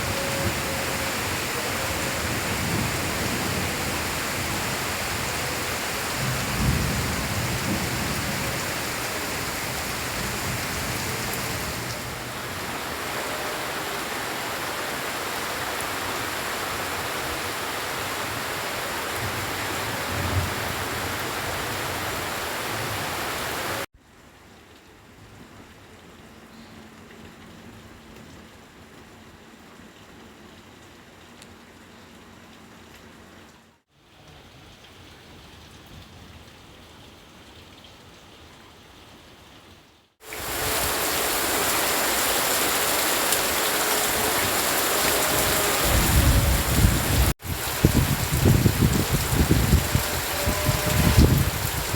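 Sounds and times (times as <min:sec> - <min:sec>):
heavy rain pouring: 0:00.0 - 0:23.9, 0:40.2 - 0:51.9
soft rain: 0:00.0 - 0:51.9.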